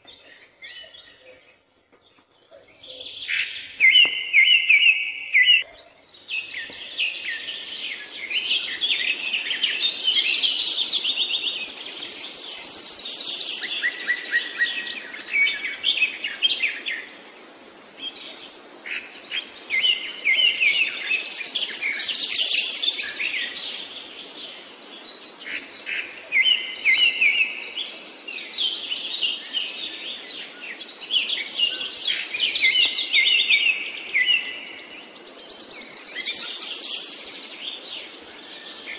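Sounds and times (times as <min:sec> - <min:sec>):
birds chirping and whistling: 0:00.1 - 0:05.7, 0:30.9 - 0:37.8.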